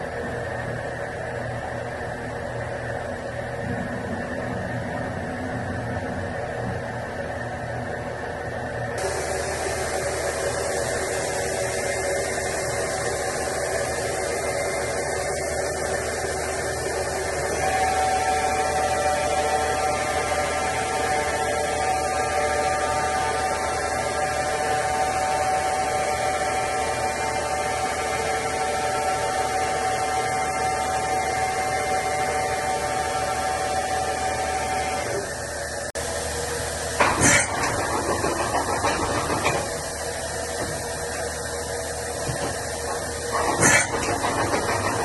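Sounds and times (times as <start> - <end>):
machine humming with held tones: 0.0 - 45.0.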